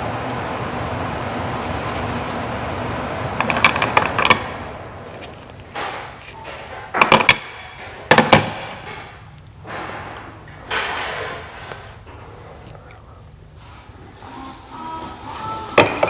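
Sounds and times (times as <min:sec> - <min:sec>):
steady rushing noise: 0:00.0 - 0:05.8
metal tools clinking: 0:00.2 - 0:09.1, 0:15.8 - 0:16.0.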